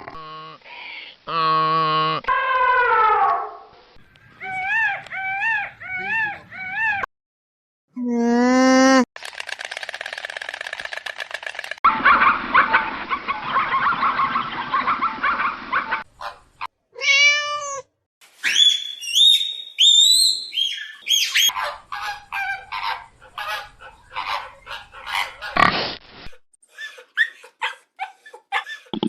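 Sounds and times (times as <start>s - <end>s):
animal chirps and squeaks: 18.4s - 21.6s.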